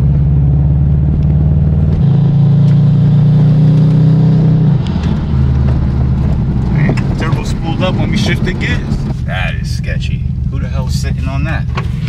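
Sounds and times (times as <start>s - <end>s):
car engine misfiring under load: 4.6s - 12.0s.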